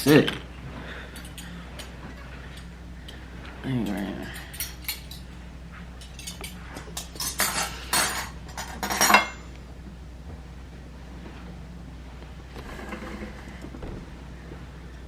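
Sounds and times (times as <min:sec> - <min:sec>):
rustling and scraping: 0:00.2 - 0:15.0
containers and utensils clattering: 0:06.0 - 0:09.5.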